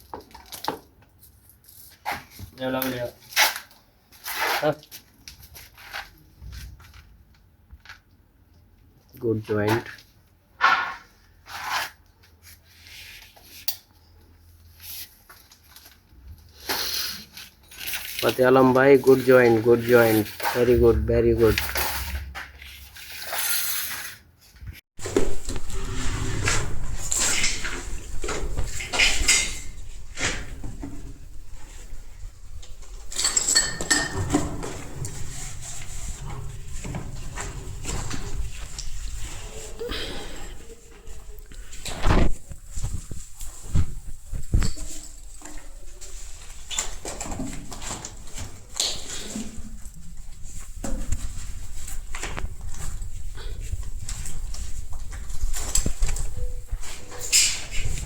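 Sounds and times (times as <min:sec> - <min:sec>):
metal objects clinking: 0:33.0 - 0:35.0.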